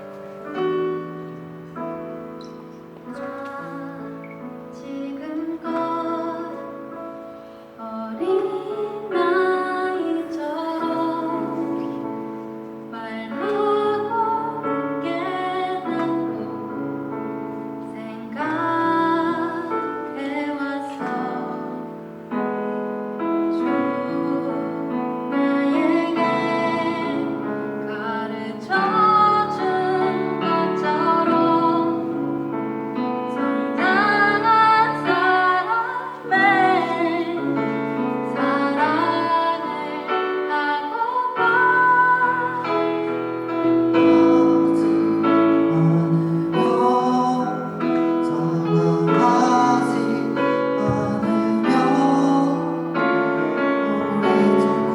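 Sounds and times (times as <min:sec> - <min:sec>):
piano accompaniment: 0:00.0 - 0:54.9
woman singing worship song: 0:03.1 - 0:06.8, 0:07.8 - 0:12.1, 0:17.8 - 0:21.9, 0:23.6 - 0:32.2, 0:33.4 - 0:43.0, 0:43.9 - 0:54.9.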